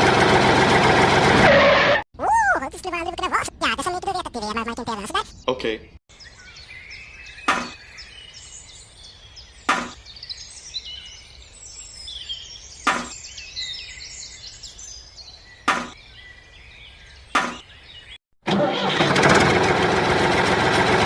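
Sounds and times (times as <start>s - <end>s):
birds chirping: 2.4s - 18.2s
sharp knocks: 7.5s - 7.8s, 9.7s - 10.0s, 12.9s - 13.2s, 15.7s - 16.0s, 17.4s - 17.6s.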